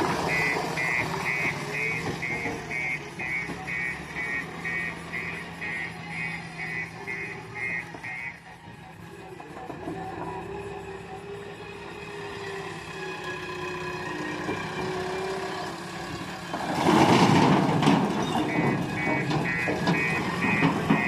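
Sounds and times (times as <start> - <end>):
reversing alarm beeping: 0.0 - 10.8, 18.1 - 21.0
heavy diesel machine running: 0.0 - 21.0.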